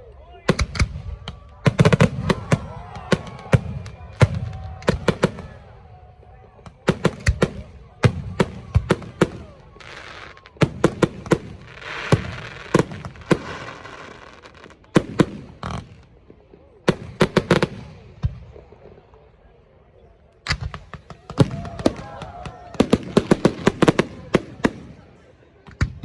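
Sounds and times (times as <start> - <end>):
fireworks bangs and pops: 0.5 - 19.1, 20.4 - 26.0
fireworks hissing crackle: 9.1 - 16.8.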